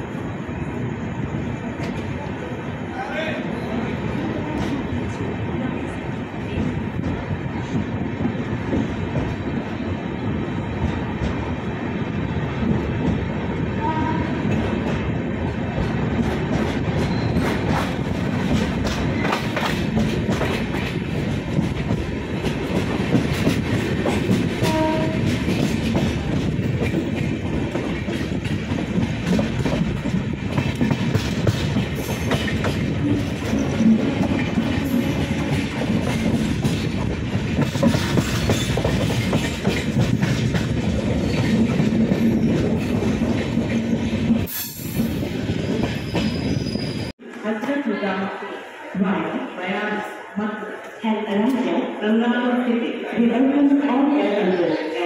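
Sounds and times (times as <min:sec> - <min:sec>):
train rumbling: 0:00.0 - 0:52.0.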